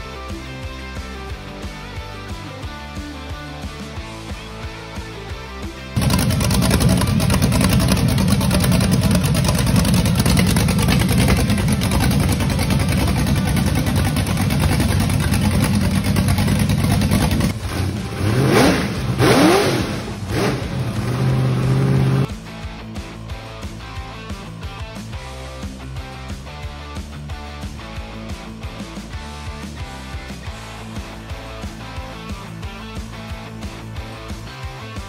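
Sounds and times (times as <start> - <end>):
engine idling and revving: 0.0 - 35.0.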